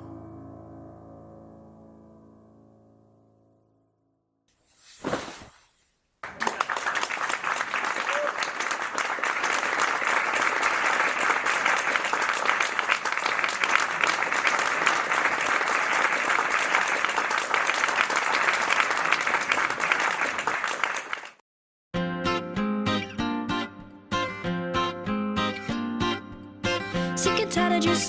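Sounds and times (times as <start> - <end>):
audience applauding and cheering: 6.2 - 21.4.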